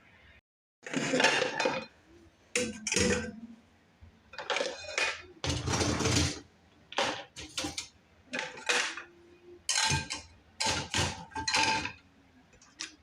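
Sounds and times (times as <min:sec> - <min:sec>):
dishes and cutlery clinking: 0:07.0 - 0:12.0.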